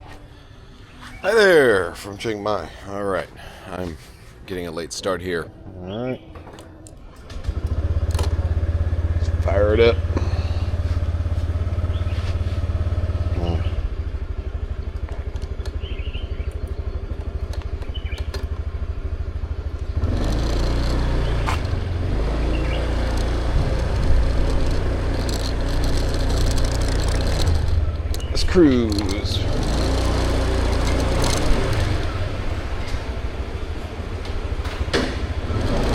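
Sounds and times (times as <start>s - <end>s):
motorbike engine idling: 6.6s - 35.9s
clicks and clatters: 14.8s - 15.8s, 16.5s - 18.6s, 22.5s - 32.2s.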